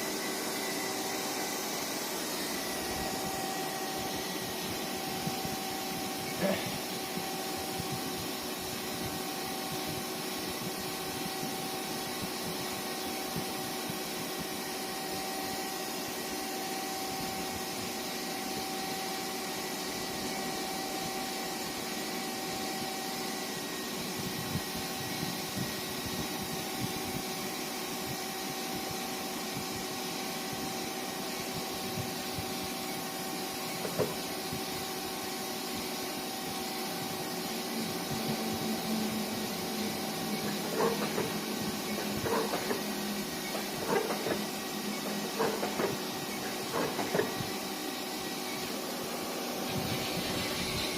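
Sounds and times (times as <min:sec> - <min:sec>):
lathe running: 0:00.0 - 0:24.2, 0:28.3 - 0:50.9.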